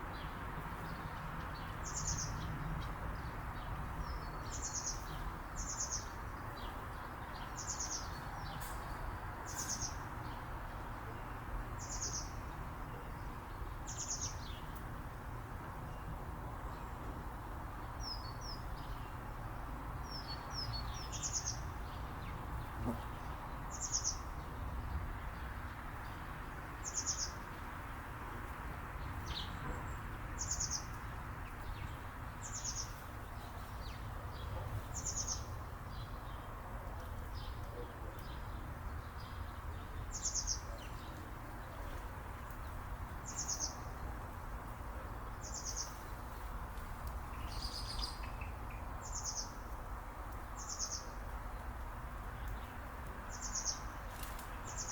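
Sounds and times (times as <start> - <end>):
soft bird chirps: 47.2 - 49.6.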